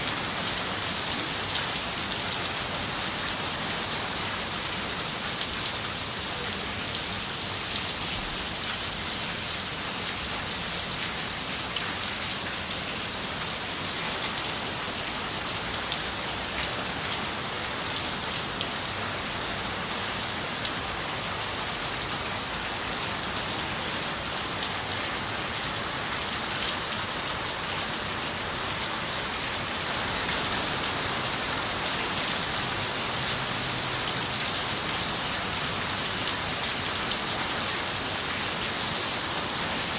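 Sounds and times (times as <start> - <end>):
rain hissing on a window: 0.0 - 39.9.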